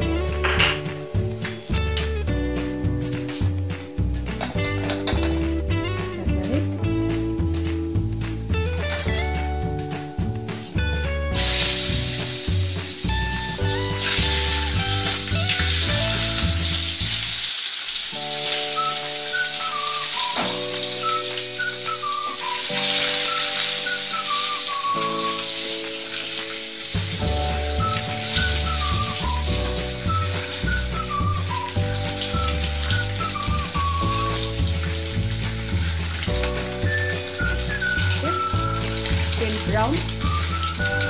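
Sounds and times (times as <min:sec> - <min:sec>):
pulsing bass line: 0:00.0 - 0:17.3, 0:27.2 - 0:41.0
background music melody: 0:00.0 - 0:41.0
eggs sizzling in hot oil: 0:07.4 - 0:41.0.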